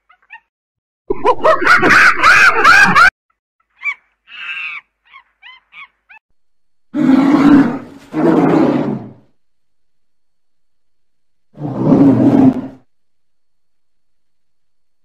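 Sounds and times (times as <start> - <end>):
monkey high chirps: 3.7 - 6.2
polar bear low roars: 6.9 - 9.3, 11.5 - 12.9.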